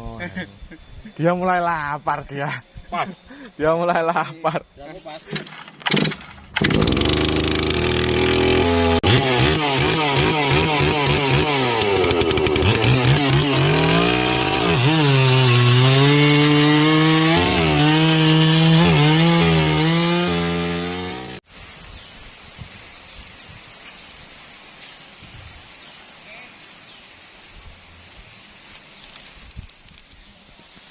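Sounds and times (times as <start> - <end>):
chainsaw cutting wood: 5.3 - 21.4.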